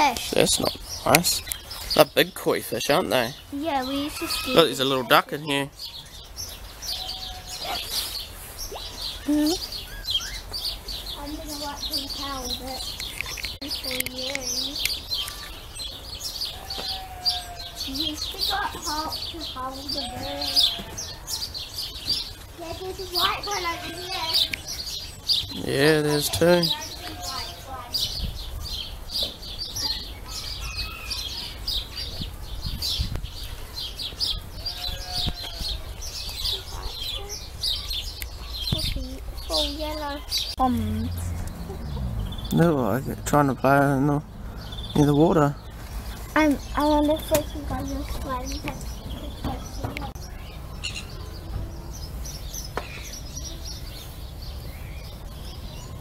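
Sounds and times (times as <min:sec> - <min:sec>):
flock of small birds chirping: 0:00.0 - 0:56.0
low steady rumble: 0:40.6 - 0:44.9.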